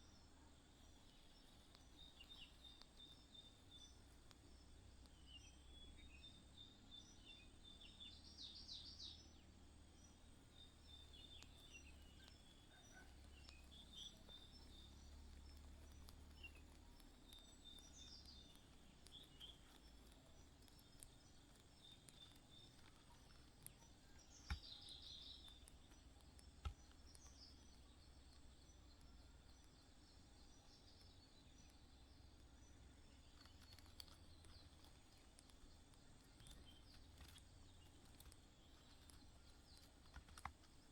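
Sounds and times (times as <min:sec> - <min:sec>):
low background rumble: 0:00.0 - 0:40.9
small birds chirping: 0:00.0 - 0:40.9
sharp clicks: 0:32.4 - 0:40.9.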